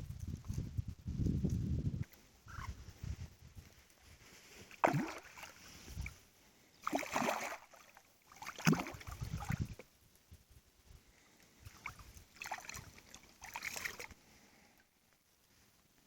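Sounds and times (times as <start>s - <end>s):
water splashing: 4.7s - 6.1s, 6.8s - 9.8s, 11.7s - 14.1s.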